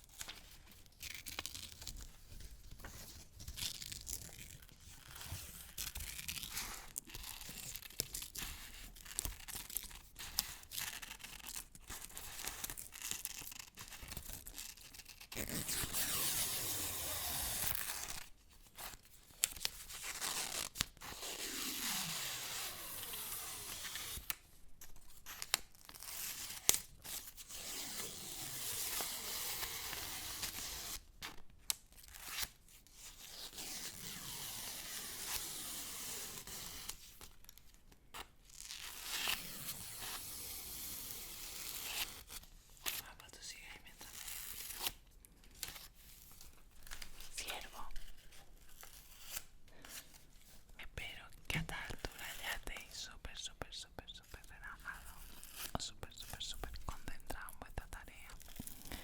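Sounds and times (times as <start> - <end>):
paper crinkling and tearing: 0.0 - 22.0.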